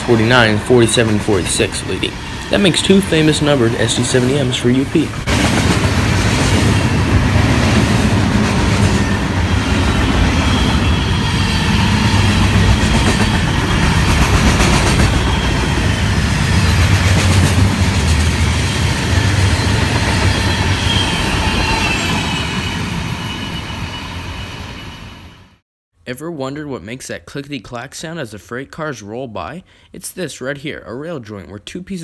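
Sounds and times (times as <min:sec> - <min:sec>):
freight train rumbling: 0:00.0 - 0:25.6.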